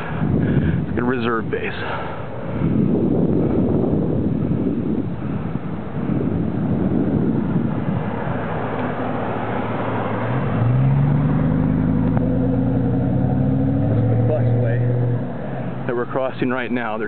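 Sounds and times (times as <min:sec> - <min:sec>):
wind on microphone: 0:00.0 - 0:15.9.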